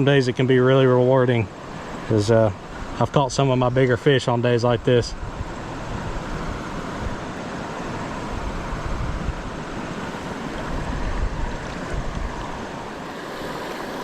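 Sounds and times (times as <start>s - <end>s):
creek water running: 0.0s - 14.0s
wind buffeting microphone: 5.0s - 14.0s.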